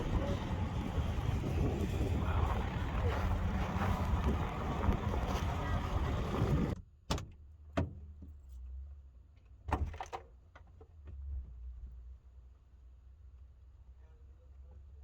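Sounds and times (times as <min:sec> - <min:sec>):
wind roaring on microphone: 0:00.0 - 0:06.8.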